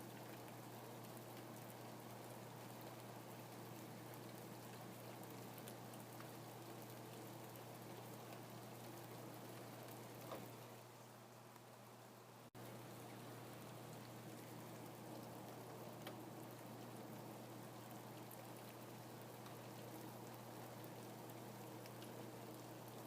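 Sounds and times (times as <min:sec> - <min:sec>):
faint steady rain: 0:00.0 - 0:23.0
raindrops ticking: 0:12.6 - 0:23.0.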